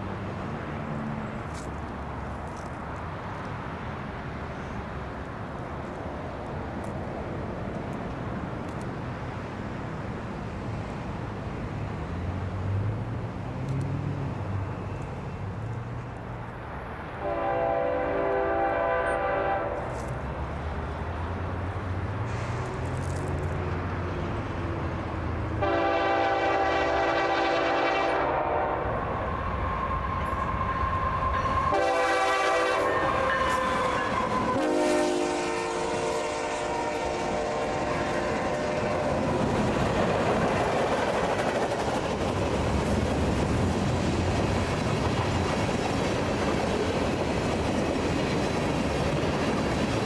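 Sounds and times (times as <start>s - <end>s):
train air horn blasts: 17.2s - 20.0s, 25.6s - 28.9s, 30.2s - 39.3s.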